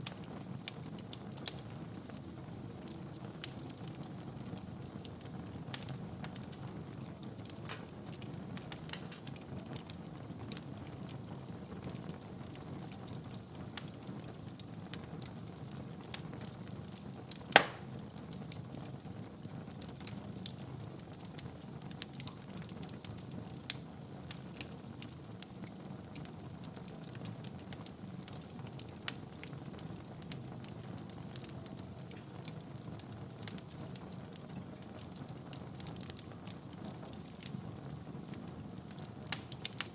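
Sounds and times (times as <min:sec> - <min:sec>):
wood fire crackling: 0:00.0 - 0:39.9
loud fire pop: 0:07.6 - 0:08.0, 0:17.5 - 0:18.0.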